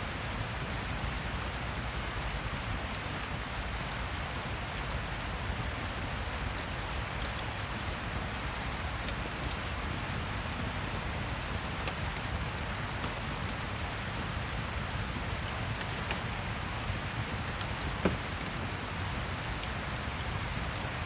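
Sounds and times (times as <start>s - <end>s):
steady rain: 0.0s - 21.0s
fire crackling: 19.1s - 21.0s.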